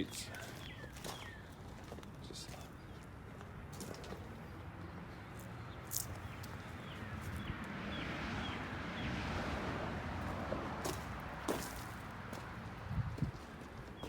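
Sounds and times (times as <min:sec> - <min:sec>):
bird chirping: 0:00.0 - 0:01.6
wind rumbling on microphone: 0:12.6 - 0:13.6.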